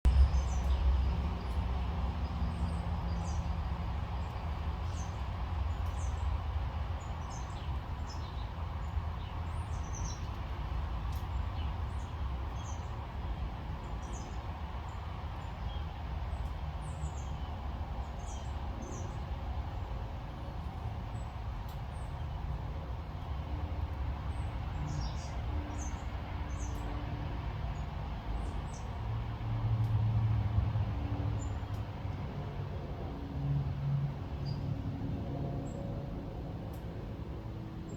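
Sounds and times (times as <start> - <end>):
steady low rumble: 0.0 - 15.6
small birds chirping: 0.1 - 23.4, 24.3 - 27.0.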